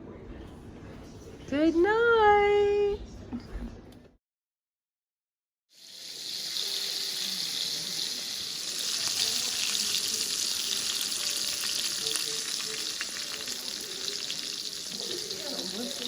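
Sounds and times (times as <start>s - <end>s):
food sizzling in a hot pan: 5.7s - 16.0s.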